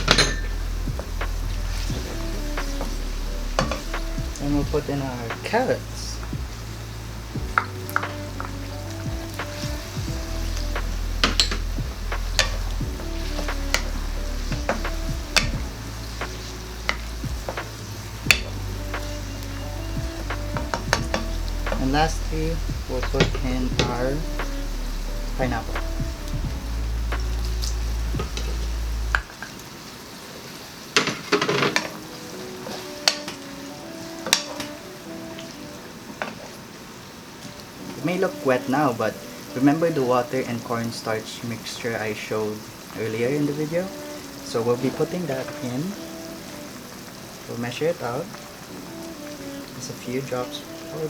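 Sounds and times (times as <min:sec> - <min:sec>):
utensil clinking and scraping wok: 0:00.0 - 0:00.8
background music with bass: 0:00.0 - 0:29.2
low hum: 0:00.0 - 0:29.2
sauce simmering: 0:00.0 - 0:51.0.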